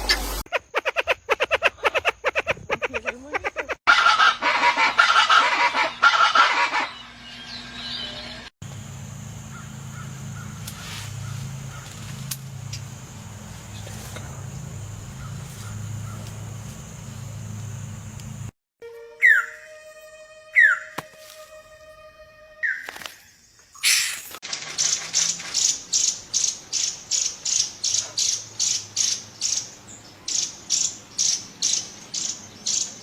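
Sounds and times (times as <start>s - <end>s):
birds calling: 0.0s - 8.5s, 9.1s - 18.5s, 22.6s - 33.0s
dense bird chattering: 13.7s - 16.5s.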